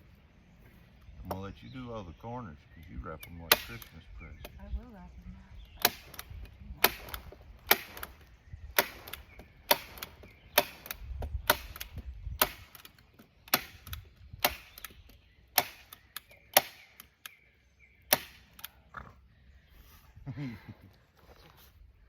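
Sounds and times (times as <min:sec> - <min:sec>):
staple gun snapping: 0:03.5 - 0:04.0, 0:08.8 - 0:17.4.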